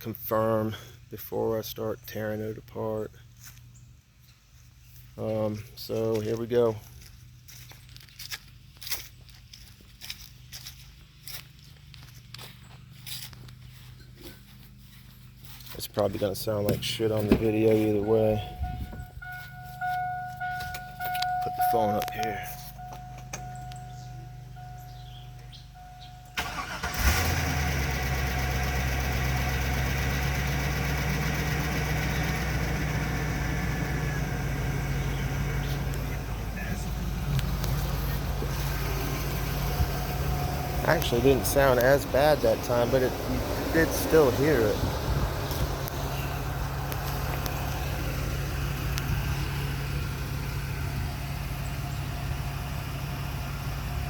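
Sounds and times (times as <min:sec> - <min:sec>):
truck engine idling: 0:00.0 - 0:54.0
starter cranking engine: 0:26.2 - 0:54.0.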